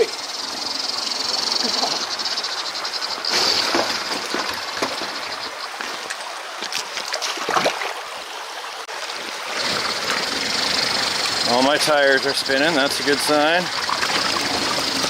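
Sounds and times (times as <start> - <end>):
steady high hiss: 0.0 - 6.1, 9.6 - 15.0
running water: 0.0 - 15.0
knocks and clicks over rocks: 3.3 - 7.8.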